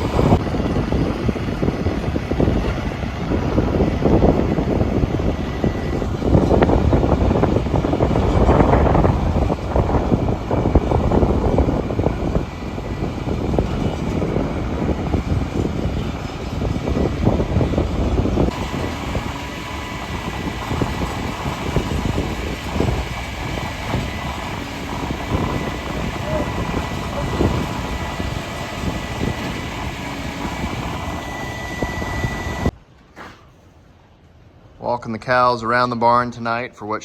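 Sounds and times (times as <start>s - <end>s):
heavy machinery engine rumbling: 0.0s - 33.9s.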